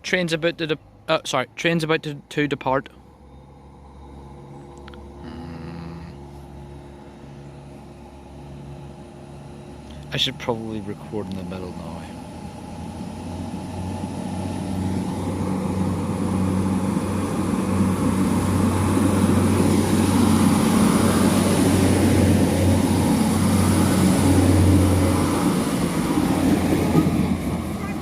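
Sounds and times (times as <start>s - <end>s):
diesel train engine humming: 0.0s - 28.0s.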